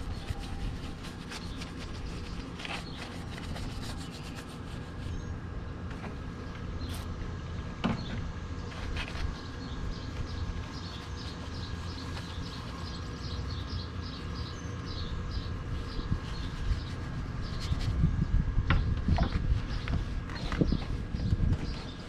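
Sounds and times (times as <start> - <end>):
steady low rumble: 0.0 - 22.0
bird chirping: 9.3 - 18.3.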